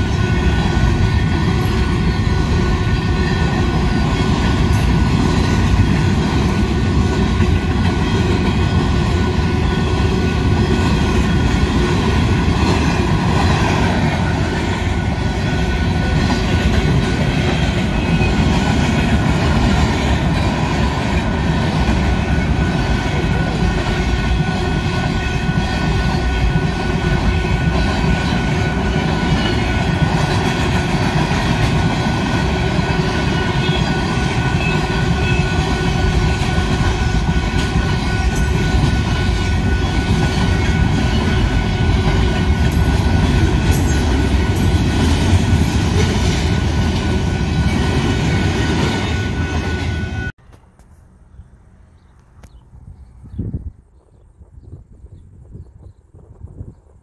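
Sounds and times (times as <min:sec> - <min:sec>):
high ringing wheels on rails: 0:00.0 - 0:50.6
railroad cars rumbling past: 0:00.0 - 0:52.0.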